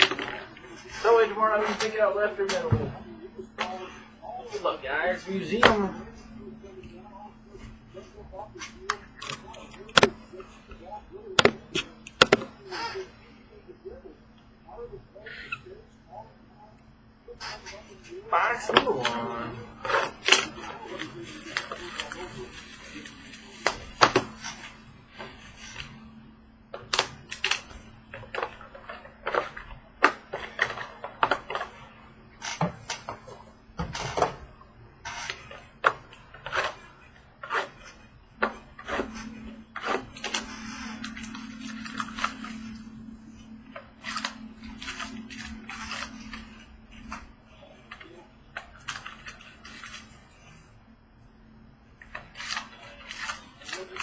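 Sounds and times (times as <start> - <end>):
faint hum: 0.0 - 54.0
plastic wrap crinkling: 35.0 - 50.6, 52.0 - 54.0.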